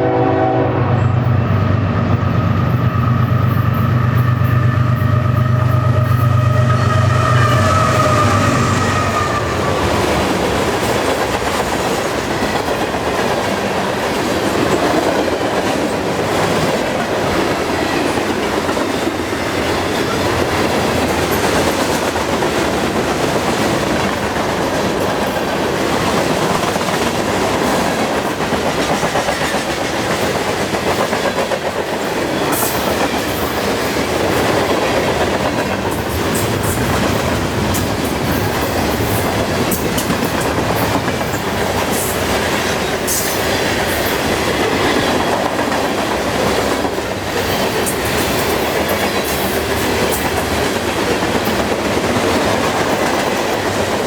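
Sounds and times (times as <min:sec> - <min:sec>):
locomotive engine hum: 0:00.0 - 0:12.1
train wheels clattering over rail joints: 0:09.7 - 0:54.0.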